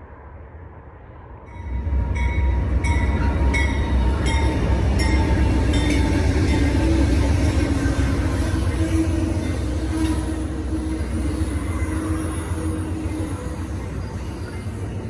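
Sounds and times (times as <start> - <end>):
passenger train rumbling: 0.0 - 15.0.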